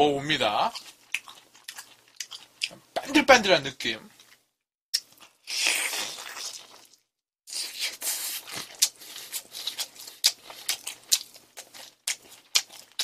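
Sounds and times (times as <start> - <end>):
crunchy chewing with clicks: 0.6 - 3.1, 4.2 - 13.0
loud crunch of biting chicken: 5.0 - 13.0.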